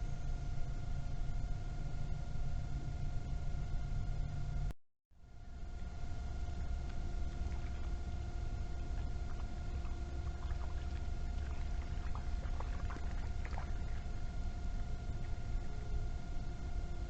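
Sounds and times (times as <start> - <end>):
thin steady hum: 0.0 - 17.0
low rumble: 5.3 - 17.0.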